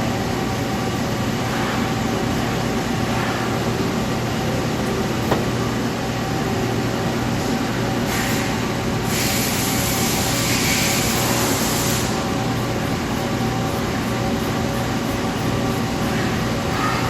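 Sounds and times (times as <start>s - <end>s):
lathe mechanical hum: 0.0s - 17.0s
hiss: 8.1s - 12.3s.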